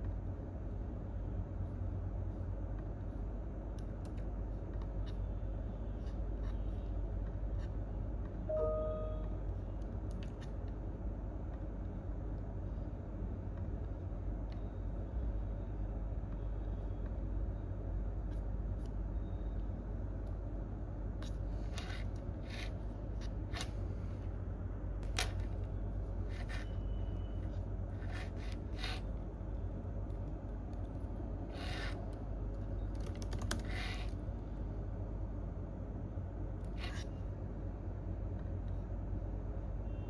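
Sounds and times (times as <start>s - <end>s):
low room hum: 0.0s - 40.0s
keyboard keystrokes: 32.8s - 33.8s.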